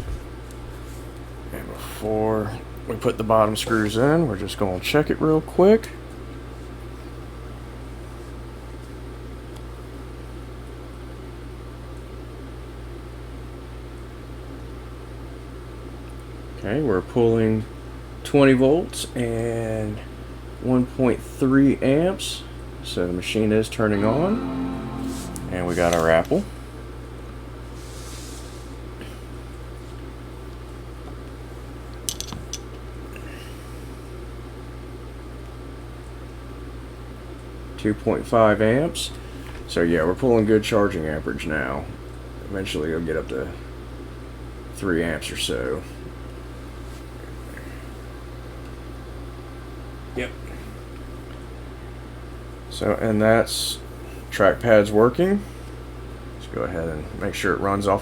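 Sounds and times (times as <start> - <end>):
low room hum: 0.0 - 58.0
faint room hiss: 23.7 - 26.6.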